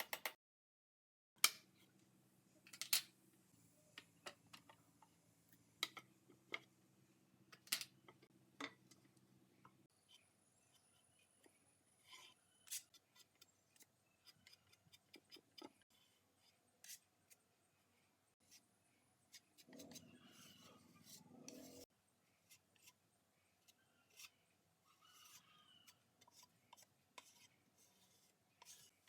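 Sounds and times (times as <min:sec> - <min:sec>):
soft rubbing or scraping: 0:19.6 - 0:21.9.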